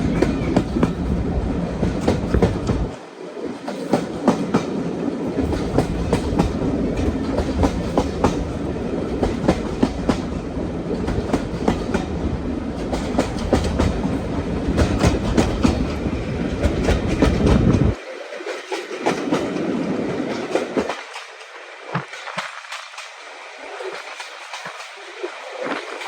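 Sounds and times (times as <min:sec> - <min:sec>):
train wheels clicking over rail joints: 0:00.0 - 0:23.2
train rumble: 0:00.0 - 0:26.0.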